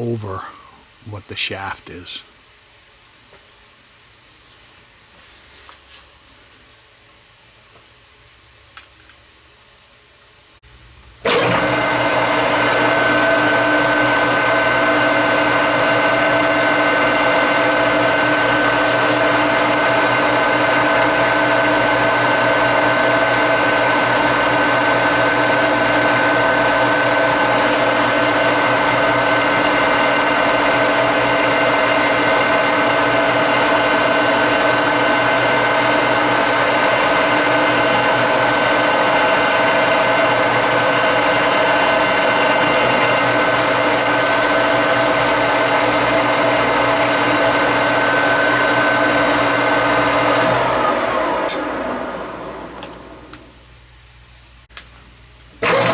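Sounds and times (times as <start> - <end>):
metal lathe running: 11.2 - 53.4, 55.6 - 55.9.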